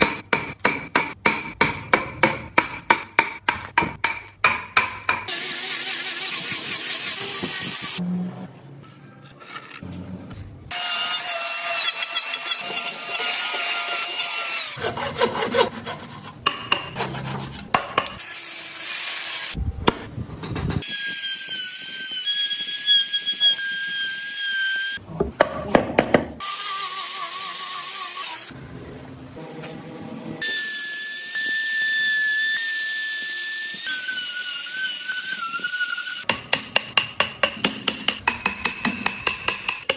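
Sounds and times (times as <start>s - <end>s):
saw on wood: 10.8s - 16.4s.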